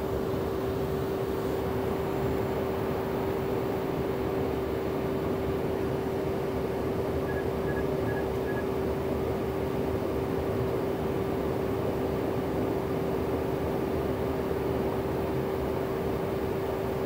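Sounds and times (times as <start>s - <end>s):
aircraft cabin air rush: 0.0s - 10.8s
steady hum tone: 0.0s - 11.4s
short faint high beeps: 7.3s - 8.7s.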